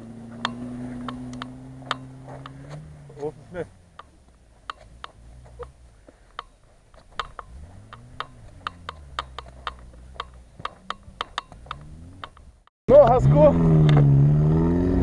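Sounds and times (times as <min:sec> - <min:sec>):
distant car engine revving: 0:00.0 - 0:15.0.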